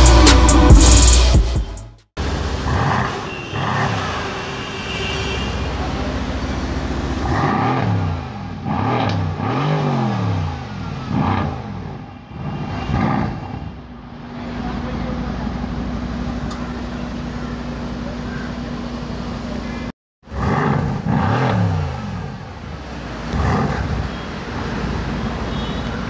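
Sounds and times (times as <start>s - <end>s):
electronic intro music: 0.0s - 2.0s
car engine revving: 2.2s - 4.5s, 5.6s - 26.0s.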